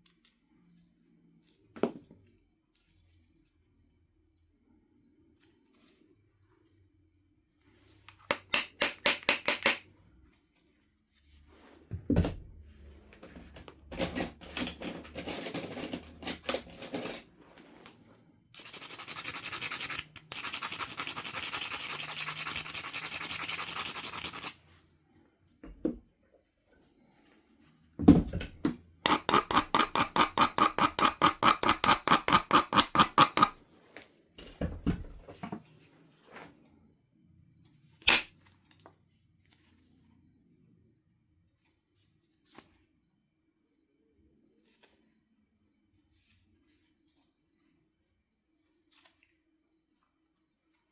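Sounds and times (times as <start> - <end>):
stone rubbing flint edge: 18.6 - 24.6, 29.1 - 33.6
stone grinding: 29.1 - 33.6.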